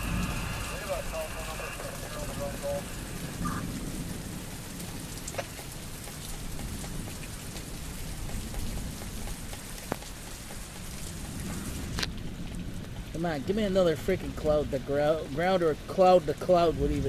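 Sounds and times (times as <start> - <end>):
low thunder rumble: 0.0 - 9.8
steady rain: 0.0 - 17.0.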